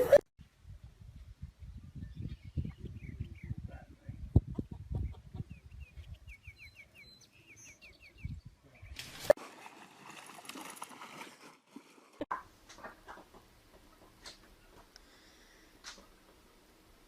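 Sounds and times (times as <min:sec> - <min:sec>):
bird chirping: 0:04.9 - 0:09.0.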